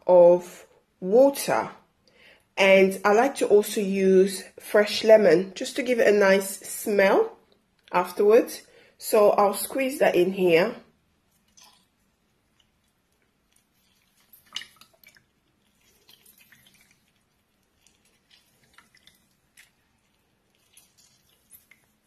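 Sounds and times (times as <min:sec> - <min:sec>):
juice dripping into water: 0:11.2 - 0:22.0
lemon squishing: 0:11.2 - 0:22.0.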